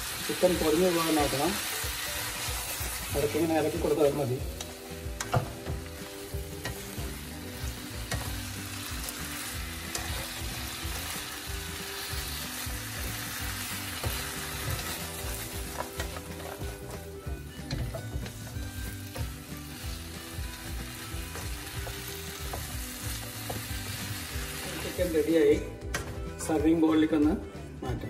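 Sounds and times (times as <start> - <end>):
food sizzling in a wok: 0.0 - 26.6
spatula tapping and scraping pan: 21.1 - 22.8.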